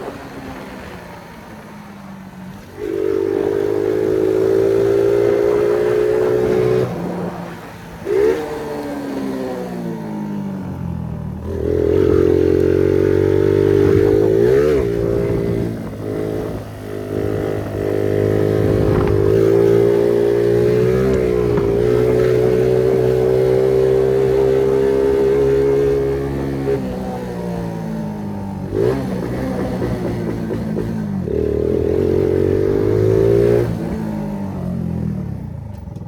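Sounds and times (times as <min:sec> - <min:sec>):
moped engine revving: 0:02.8 - 0:36.0
exhaust popping and crackling: 0:17.7 - 0:23.7.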